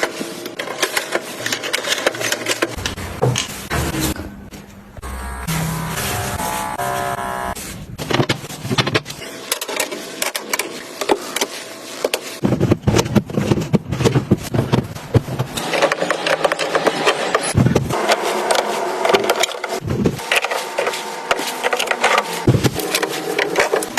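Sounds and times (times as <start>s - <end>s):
plastic boxes clicking and knocking: 0.0s - 3.5s, 8.0s - 20.6s
pitched tones: 2.9s - 7.7s.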